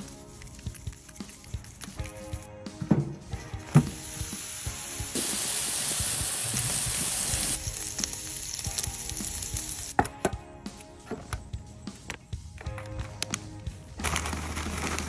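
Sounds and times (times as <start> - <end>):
beef sizzling on a griddle: 4.0 - 9.9.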